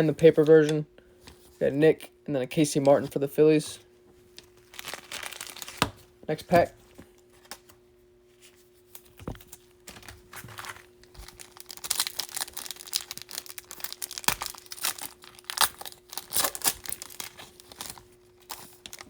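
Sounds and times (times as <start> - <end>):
plastic wrapper crinkling: 4.4 - 6.0, 9.4 - 19.0.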